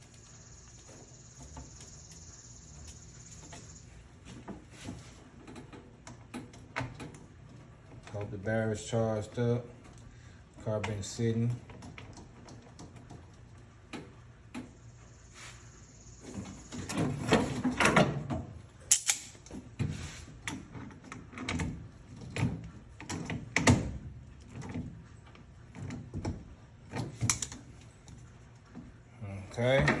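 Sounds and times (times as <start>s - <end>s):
knocks and rattles of car repair: 4.2s - 8.5s, 16.7s - 27.6s
tools and metal parts handled: 18.9s - 19.7s.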